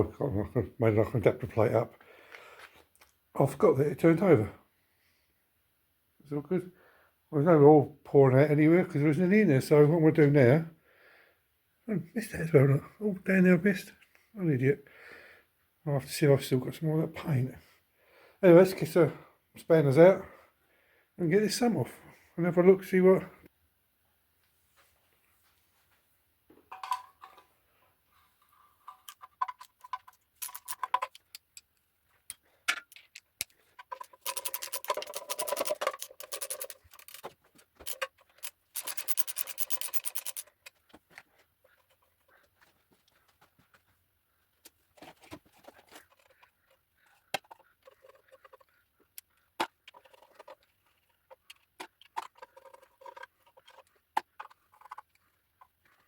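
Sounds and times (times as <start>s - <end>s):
metal spanners clinking on bolts: 29.0s - 31.7s, 32.3s - 40.8s
ratchet clicking rapidly: 38.8s - 40.4s.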